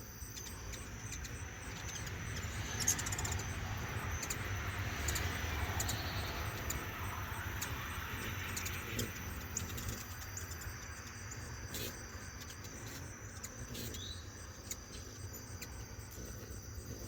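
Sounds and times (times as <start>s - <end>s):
high insect trill: 0.0s - 17.0s
hummingbird chip calls: 0.0s - 17.0s
steady low rumble: 0.4s - 13.6s.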